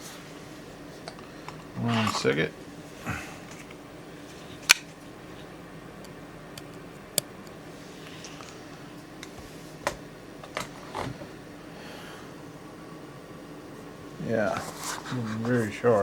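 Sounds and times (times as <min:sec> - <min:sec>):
low room hum: 0:00.0 - 0:16.0
faint brushing: 0:13.8 - 0:16.0.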